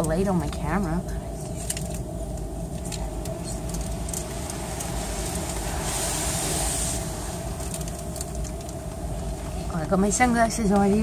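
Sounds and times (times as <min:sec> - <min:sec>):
car wash mechanical hum: 0:00.0 - 0:11.0
water spray hissing on car: 0:01.5 - 0:11.0.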